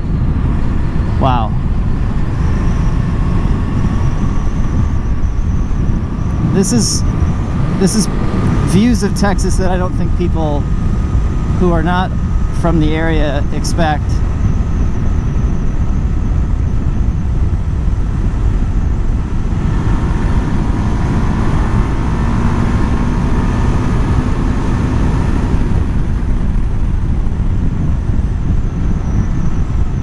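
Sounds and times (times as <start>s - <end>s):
high whine: 0.0s - 30.0s
motorcycle engine cruising: 0.0s - 30.0s
wind rushing over microphone: 0.0s - 30.0s.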